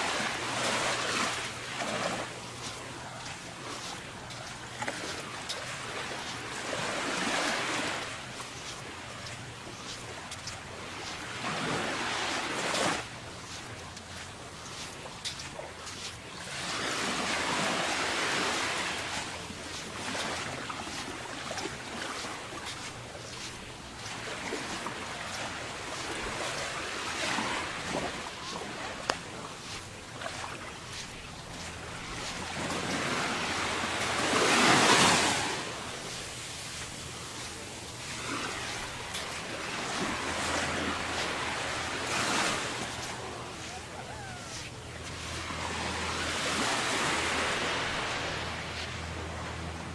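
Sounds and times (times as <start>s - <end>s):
surf washing onto sandy beach: 0.0s - 49.9s
surf breaking on beach: 31.6s - 48.8s.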